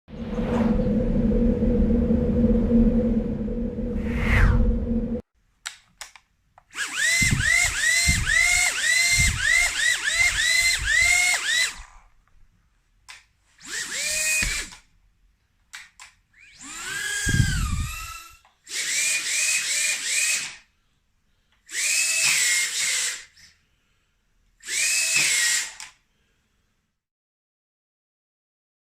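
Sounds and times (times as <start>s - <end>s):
drone motors whining: 0.1s - 5.2s.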